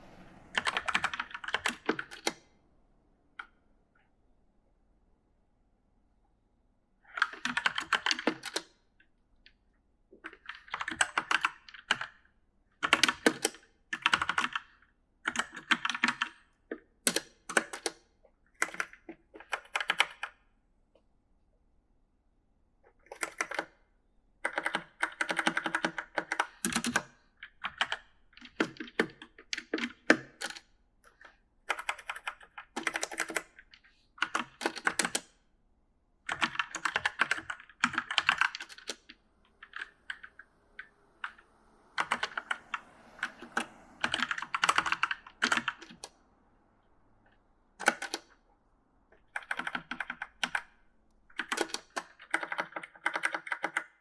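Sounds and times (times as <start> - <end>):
mechanical keyboard typing: 0.6 - 2.4, 7.2 - 8.8, 10.2 - 12.2, 12.8 - 20.4, 23.0 - 23.8, 24.4 - 35.4, 36.2 - 46.2, 47.8 - 48.4, 49.1 - 54.0.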